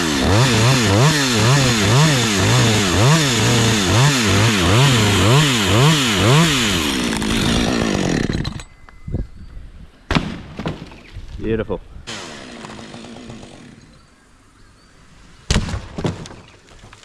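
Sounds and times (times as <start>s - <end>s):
chainsaw running at high revs: 0.0s - 8.6s, 12.1s - 14.0s.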